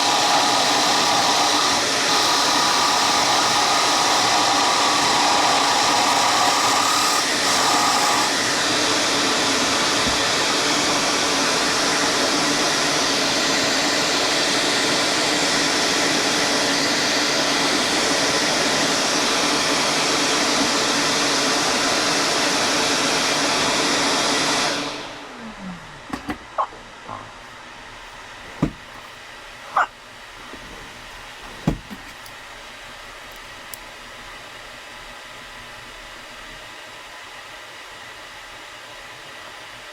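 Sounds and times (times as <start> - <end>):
woodworking machine running: 0.0 - 16.3.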